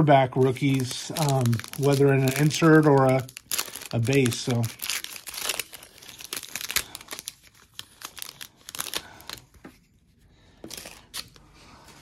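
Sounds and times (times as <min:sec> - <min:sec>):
plastic wrapper crinkling and tearing: 0:00.2 - 0:09.7.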